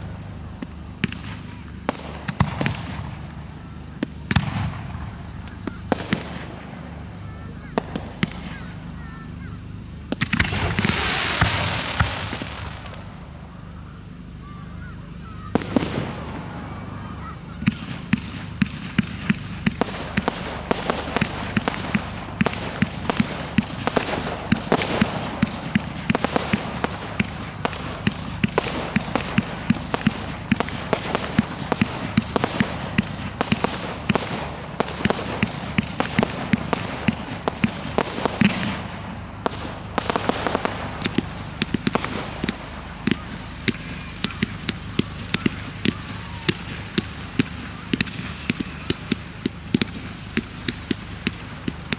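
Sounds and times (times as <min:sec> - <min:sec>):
firework bangs and crackles: 0:00.0 - 0:51.9
firework hissing burst: 0:10.2 - 0:13.7.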